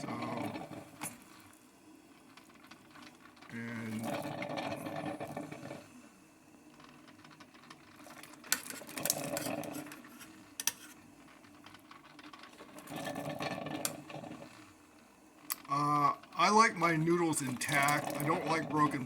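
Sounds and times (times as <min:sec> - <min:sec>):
noodles stirred in glass carafe: 0:02.2 - 0:05.8, 0:06.7 - 0:14.7, 0:17.3 - 0:19.0.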